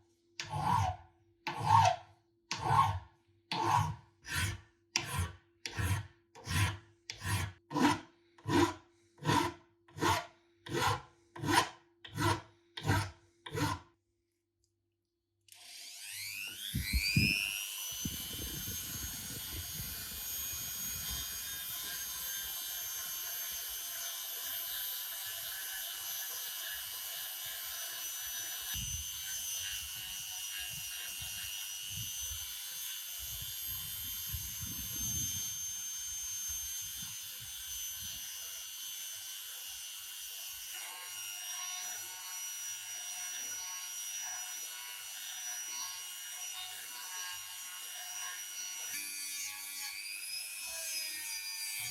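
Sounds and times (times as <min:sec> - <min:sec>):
power tool motor whining: 0:15.5 - 0:38.6.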